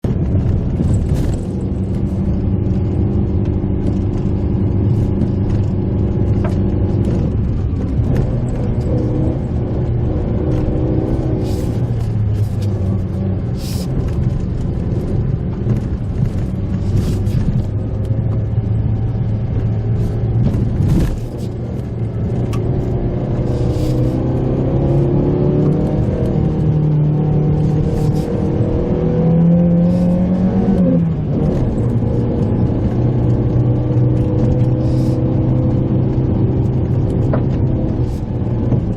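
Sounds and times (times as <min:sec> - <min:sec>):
knocks and clicks from car: 0:00.1 - 0:09.2, 0:13.9 - 0:22.8, 0:35.7 - 0:38.9
car engine revving: 0:00.1 - 0:38.9.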